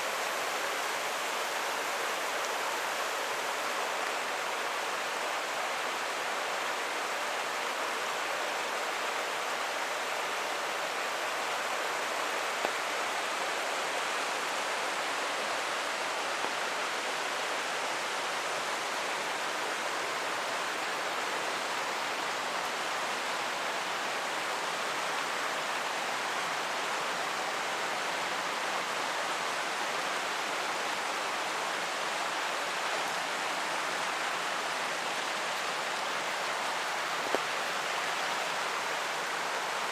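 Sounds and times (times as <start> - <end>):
creek running: 0.0 - 39.9
rain falling: 0.0 - 39.9.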